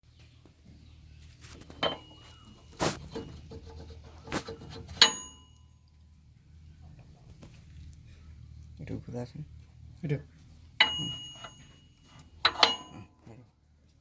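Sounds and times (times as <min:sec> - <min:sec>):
metallic clinks ringing: 0:05.0 - 0:05.8, 0:10.8 - 0:13.2.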